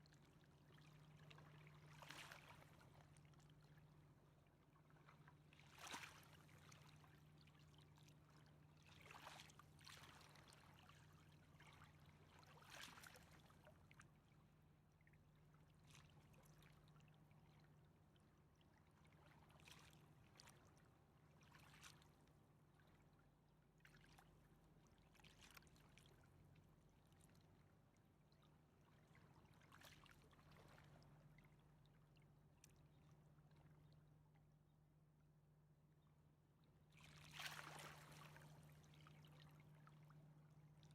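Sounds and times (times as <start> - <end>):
river water lapping: 28.9 - 31.6, 37.0 - 40.0.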